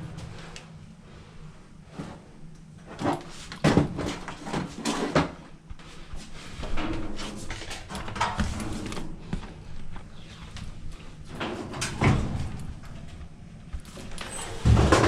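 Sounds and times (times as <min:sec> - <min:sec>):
dryer low steady hum: 0:00.0 - 0:15.0
dryer knocking and clunking: 0:06.6 - 0:09.7, 0:11.2 - 0:15.0.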